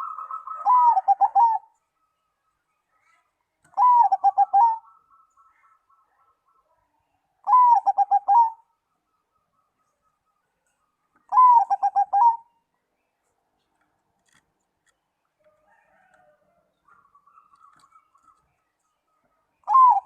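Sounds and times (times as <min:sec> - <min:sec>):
dove cooing: 0:00.0 - 0:01.8, 0:03.7 - 0:05.0, 0:07.4 - 0:08.7, 0:11.3 - 0:12.5, 0:19.6 - 0:20.0
faint soft bird calls: 0:00.0 - 0:20.0.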